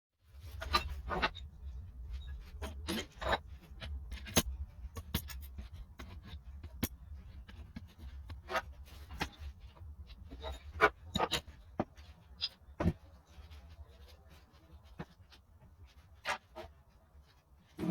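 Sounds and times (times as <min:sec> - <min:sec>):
hand tools clinking and scraping: 0:00.4 - 0:17.9.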